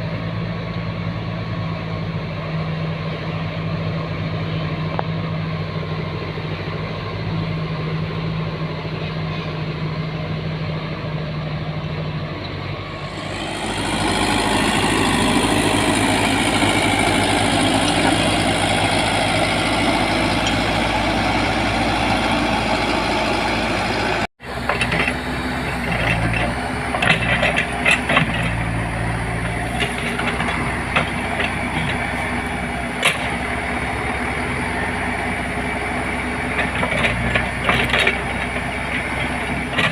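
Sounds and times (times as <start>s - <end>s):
diesel engine of heavy machinery: 0.0s - 39.9s
metallic clanks and knocks: 24.6s - 28.6s, 36.6s - 39.9s.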